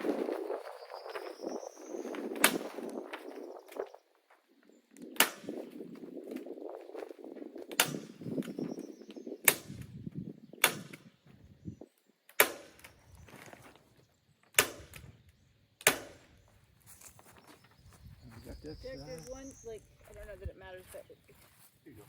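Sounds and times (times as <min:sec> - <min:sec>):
plastic sheeting rustling: 0:00.0 - 0:04.0.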